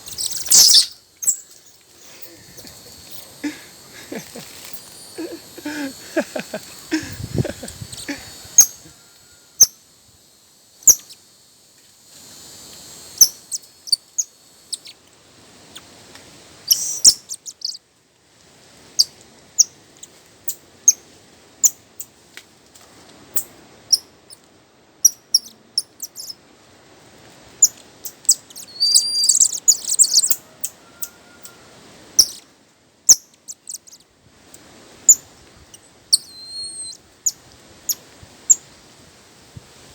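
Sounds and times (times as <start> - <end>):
bird chirping: 0.0 - 3.3, 28.1 - 30.8, 32.2 - 32.4, 33.1 - 34.0, 36.1 - 38.6.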